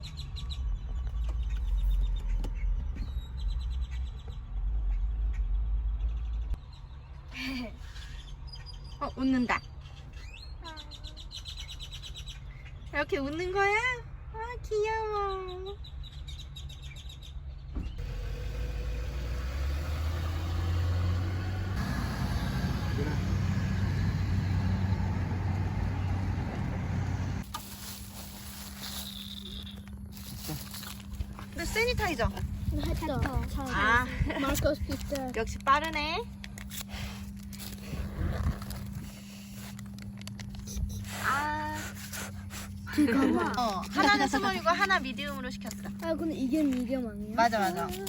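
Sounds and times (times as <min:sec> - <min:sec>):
low rumble: 0:17.9 - 0:27.5.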